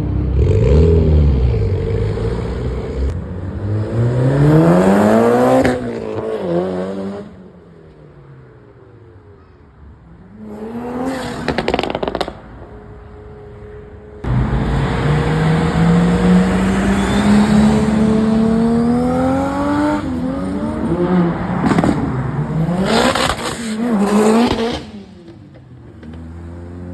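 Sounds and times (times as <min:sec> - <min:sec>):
car engine revving: 0:00.2 - 0:07.4, 0:10.4 - 0:25.1
car pulling away: 0:10.6 - 0:25.0.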